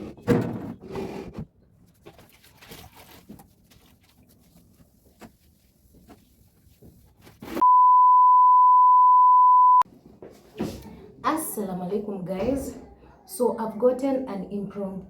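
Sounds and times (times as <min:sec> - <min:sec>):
steady electronic beep: 0:07.6 - 0:09.8.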